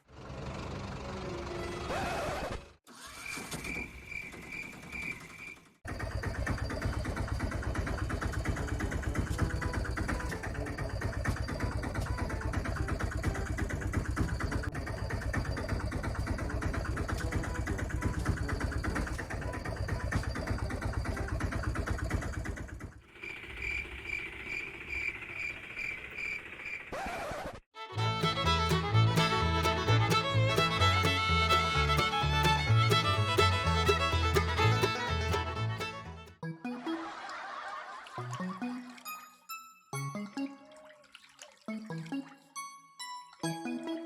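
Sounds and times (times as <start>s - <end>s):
vehicle engine chugging: 0.0s - 2.4s, 5.9s - 26.8s, 28.0s - 36.4s.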